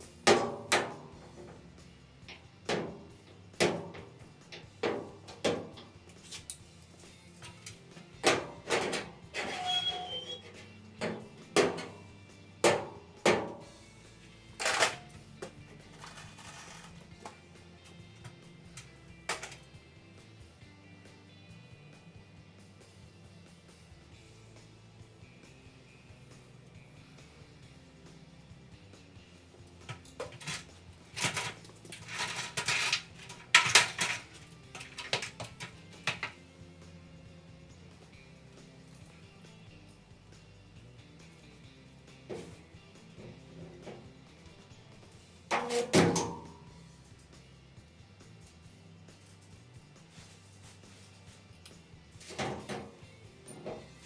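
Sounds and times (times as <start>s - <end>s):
quiet background music: 0.0s - 54.0s
metal objects clattering: 7.3s - 13.8s, 14.5s - 18.4s, 19.2s - 19.7s, 29.8s - 36.4s, 42.3s - 46.8s, 51.7s - 54.0s.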